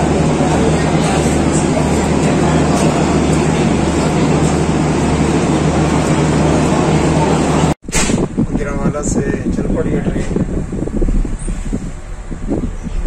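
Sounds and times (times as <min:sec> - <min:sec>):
standing train mechanical hum: 0:00.0 - 0:13.0.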